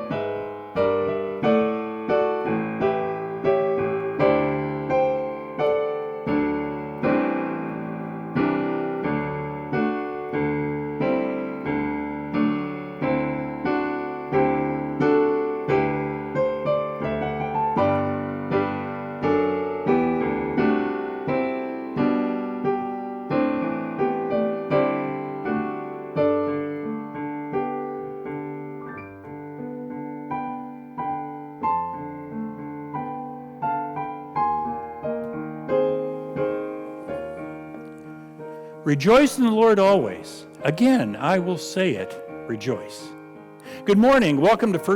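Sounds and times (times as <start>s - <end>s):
slow solo piano: 0.0s - 44.9s.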